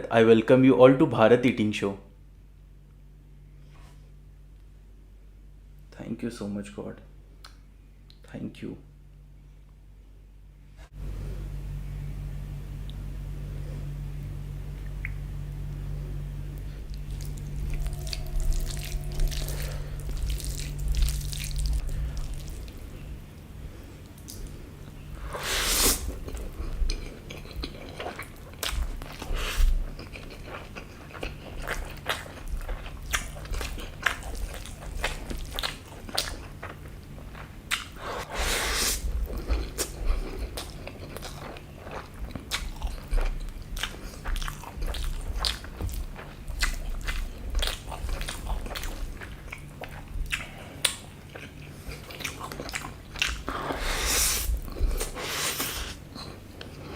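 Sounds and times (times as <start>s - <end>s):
steady low hum: 0.0s - 56.9s
chewing and biting: 25.8s - 56.9s.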